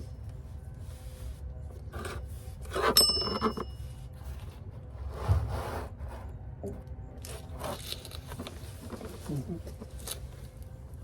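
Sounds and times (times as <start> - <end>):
ringing metallic clink: 3.0 - 3.8.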